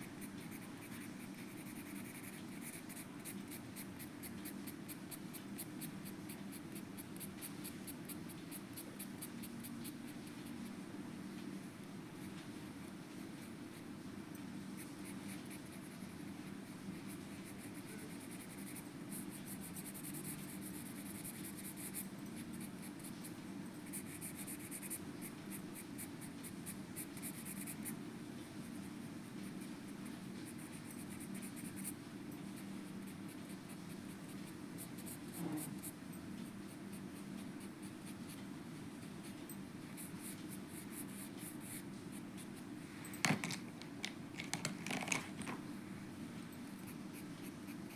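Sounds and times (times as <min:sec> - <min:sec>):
pencil scratching on paper: 0:00.0 - 0:10.6, 0:17.0 - 0:23.2.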